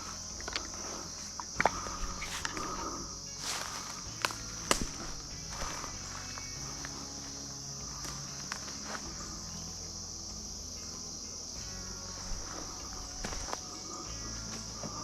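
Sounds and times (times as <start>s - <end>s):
light clicks in leaves: 0.0s - 9.2s
insects droning: 0.0s - 15.0s.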